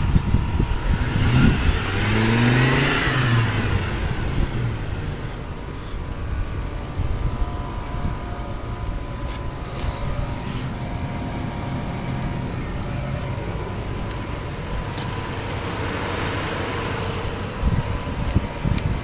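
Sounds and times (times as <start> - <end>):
pickup engine rumbling: 0.0 - 19.0
faint steady whine: 3.9 - 19.0
hiss: 9.6 - 10.7.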